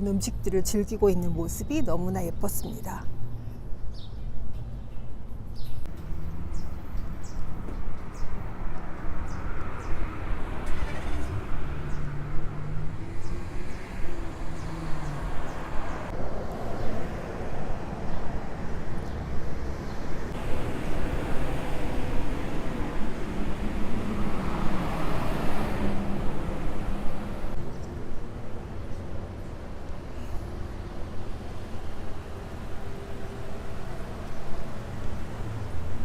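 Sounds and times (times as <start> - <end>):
vehicle passing: 20.3 - 27.7.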